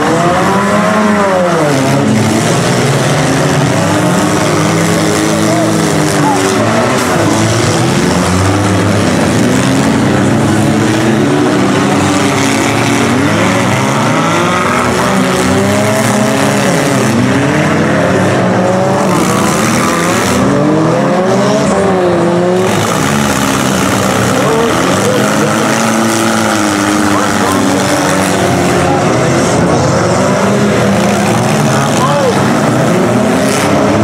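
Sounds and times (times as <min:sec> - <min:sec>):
car engines revving: 0:00.0 - 0:34.0.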